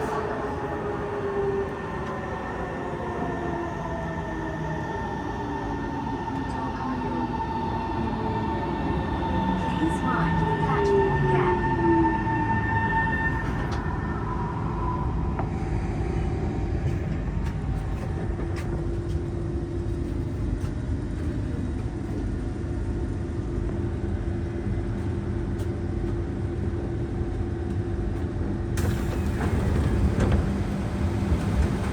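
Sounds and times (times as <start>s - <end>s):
train wheels rumbling on rails: 15.0s - 31.9s.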